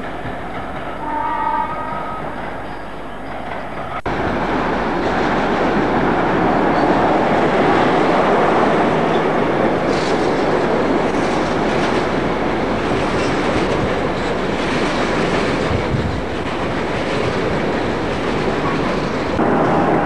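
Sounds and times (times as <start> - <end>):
diesel train rumbling: 0.0 - 20.0
wheels clattering over rail joints: 5.0 - 20.0.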